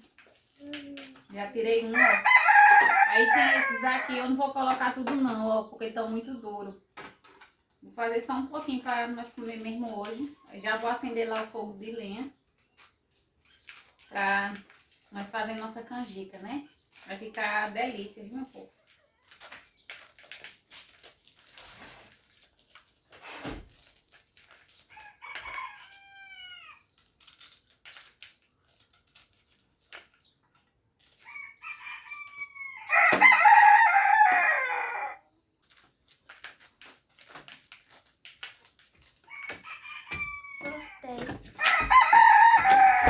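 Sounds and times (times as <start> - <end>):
rooster crowing: 2.0 - 4.2, 31.3 - 35.2, 39.3 - 41.0, 41.6 - 43.0
corn kernels stripped by hand: 19.2 - 30.2.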